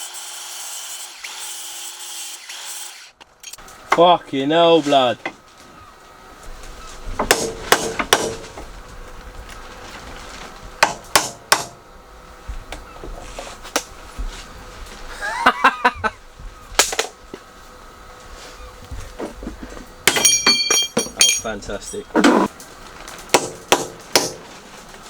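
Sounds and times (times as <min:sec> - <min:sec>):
hammer knocking on metal: 0:20.1 - 0:21.5.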